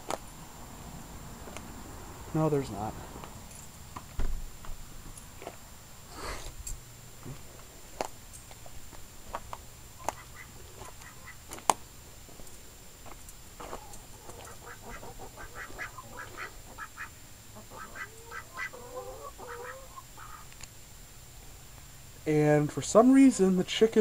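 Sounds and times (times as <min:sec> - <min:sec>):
ducks quacking: 0:10.0 - 0:11.5, 0:13.6 - 0:20.5.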